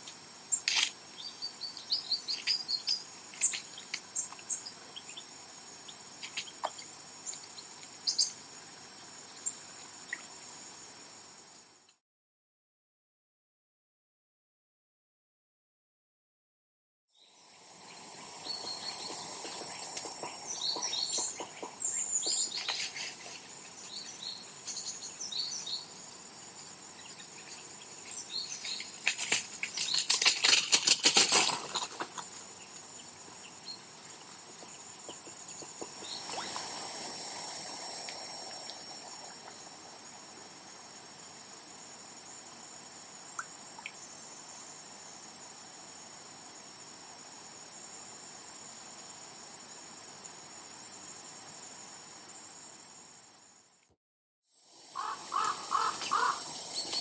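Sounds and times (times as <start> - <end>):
steady high hiss: 0.0 - 12.0, 17.2 - 53.8, 54.5 - 57.0
small birds chirping: 0.5 - 8.4, 17.2 - 30.2, 31.7 - 36.8, 55.0 - 57.0
dense crackling rustle: 29.0 - 32.2
soft rush: 35.8 - 40.0.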